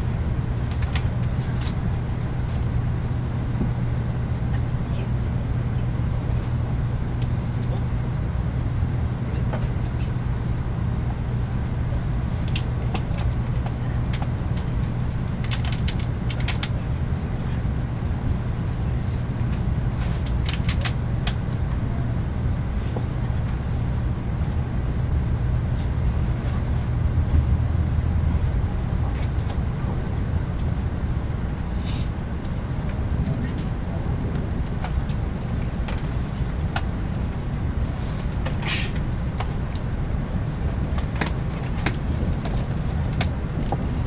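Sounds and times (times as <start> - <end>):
train rumble inside cabin: 0.0 - 44.0.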